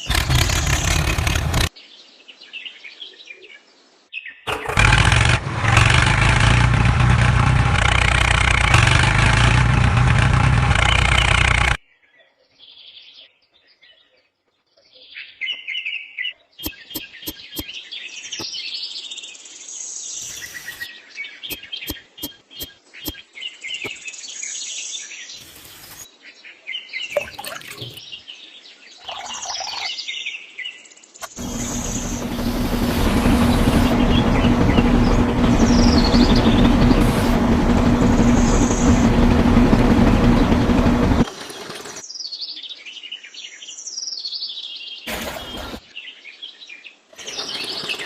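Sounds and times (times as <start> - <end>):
loud motor running: 0.0 - 1.7, 4.5 - 11.8, 31.2 - 42.0, 45.1 - 45.8
birds chirping: 7.8 - 19.4, 20.0 - 26.1, 26.8 - 42.5, 45.0 - 46.6, 47.2 - 48.0.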